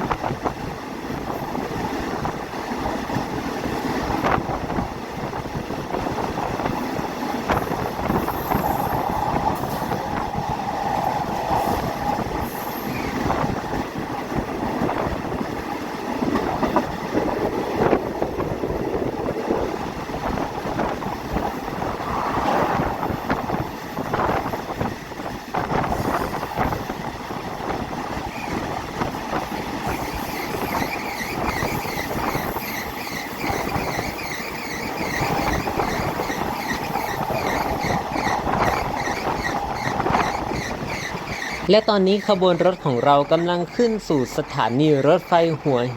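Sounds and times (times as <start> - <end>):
wheels clattering on track: 0.0 - 45.6
train rumbling: 0.0 - 45.9
wheel squeal: 29.9 - 44.6.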